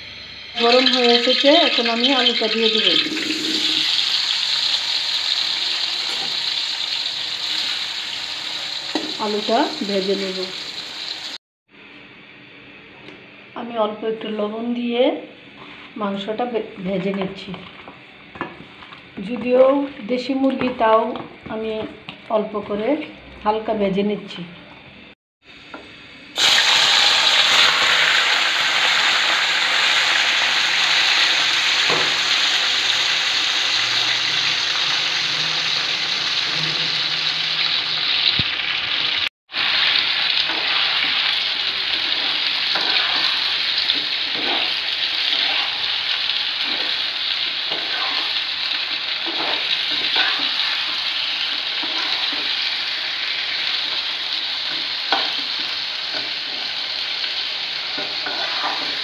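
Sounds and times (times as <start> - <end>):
chicken sizzling in hot oil: 0.4 - 11.4, 26.3 - 59.0.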